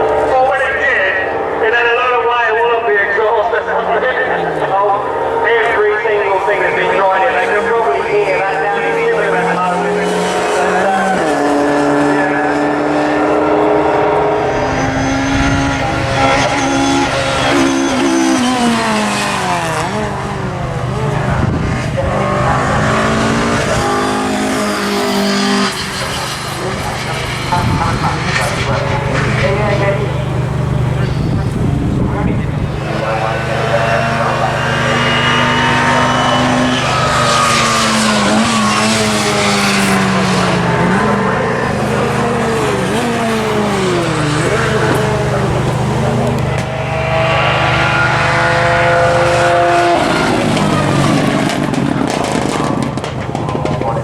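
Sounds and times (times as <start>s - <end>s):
rally car engine revving: 0.0s - 54.0s
rushing noise: 12.1s - 54.0s.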